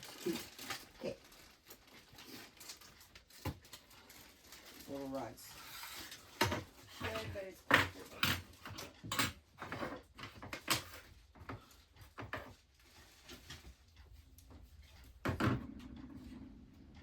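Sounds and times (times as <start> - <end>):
household items knocking and clattering: 2.6 - 4.8, 6.0 - 13.8, 14.5 - 16.4.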